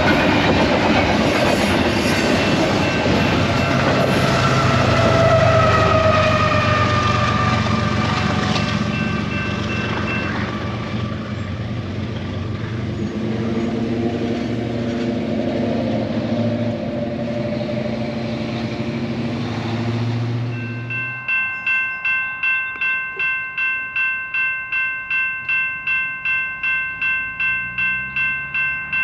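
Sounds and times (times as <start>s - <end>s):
freight train rumbling past: 0.0s - 22.4s
train horn: 3.4s - 11.2s.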